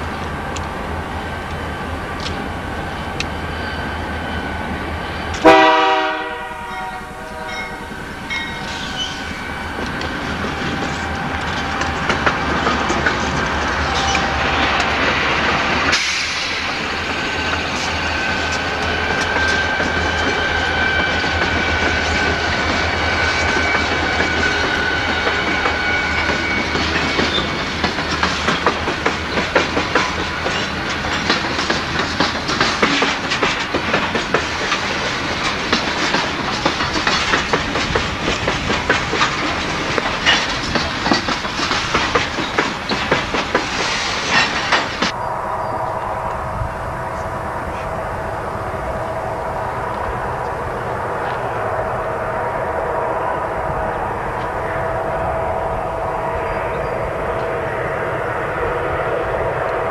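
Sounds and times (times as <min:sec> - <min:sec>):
diesel locomotive engines rumbling: 0:00.0 - 0:59.9
train horn blast: 0:05.3 - 0:12.6, 0:45.1 - 0:59.9
thin high tone: 0:06.7 - 0:11.9, 0:45.1 - 0:51.8
wheel clatter over rail joints: 0:08.2 - 0:45.2.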